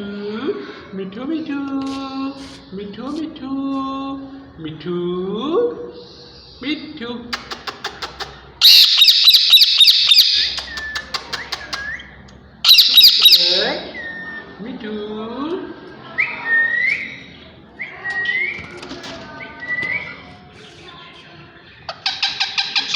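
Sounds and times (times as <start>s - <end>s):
parrots screeching: 8.6s - 12.0s, 12.6s - 14.6s, 21.9s - 22.9s.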